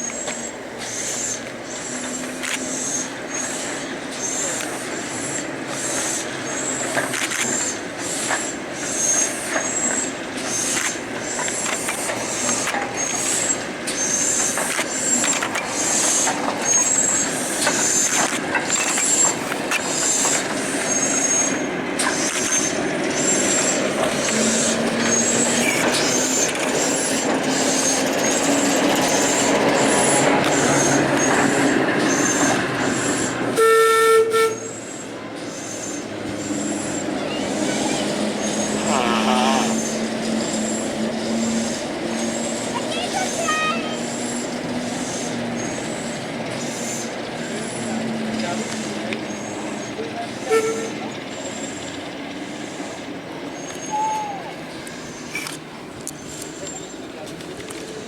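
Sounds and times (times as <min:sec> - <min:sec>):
rail clicks: 0:00.0 - 0:58.0
train running on track: 0:00.0 - 0:58.0
wheel flange squeal: 0:00.0 - 0:58.0
train horn: 0:33.6 - 0:34.8, 0:50.4 - 0:51.1.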